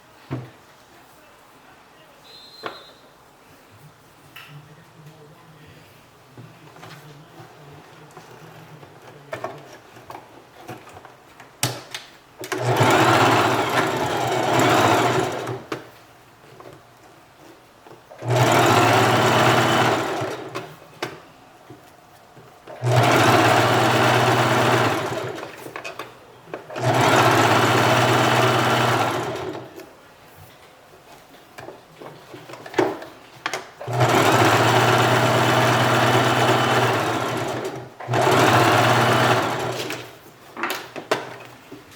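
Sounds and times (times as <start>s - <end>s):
sewing machine running: 12.4s - 15.7s, 18.2s - 20.7s, 22.7s - 25.6s, 26.7s - 29.7s, 33.8s - 40.1s.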